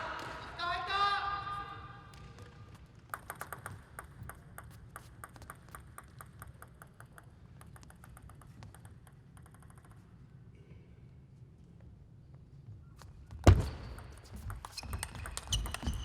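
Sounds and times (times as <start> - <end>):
table tennis ball pinging: 2.2 - 10.3, 13.4 - 16.0.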